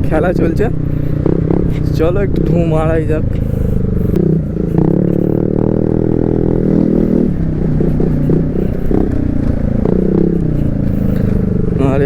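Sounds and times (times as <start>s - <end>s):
person talking: 0.0s - 0.8s, 1.7s - 3.4s, 11.8s - 12.0s
motorcycle engine revving: 0.0s - 12.0s.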